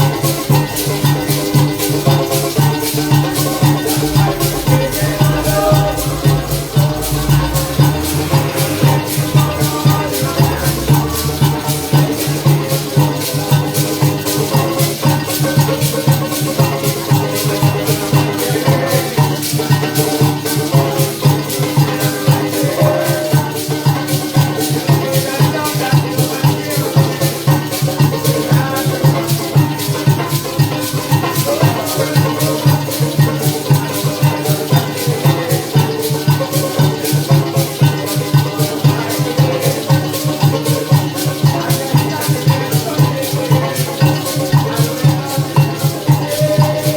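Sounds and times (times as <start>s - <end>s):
instruments playing a melody: 0.0s - 23.6s, 26.8s - 46.9s
maracas shaking: 0.0s - 46.9s
bass line: 0.6s - 13.8s.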